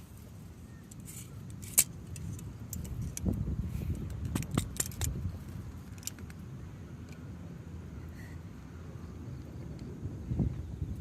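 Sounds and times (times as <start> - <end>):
low steady rumble: 0.0 - 11.0
sharp clicks and knocks: 0.9 - 5.3.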